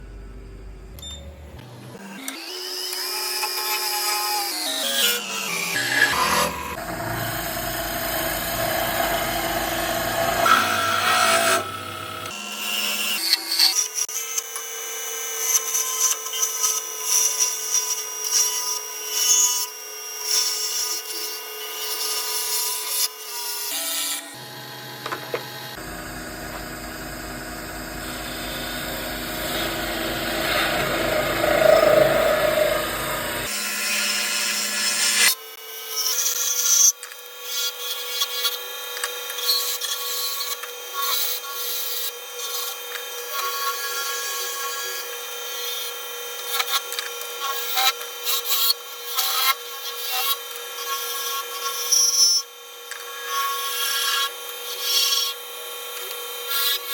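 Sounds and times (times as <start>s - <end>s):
lathe tool scraping wood: 2.0s - 12.4s, 23.7s - 35.4s.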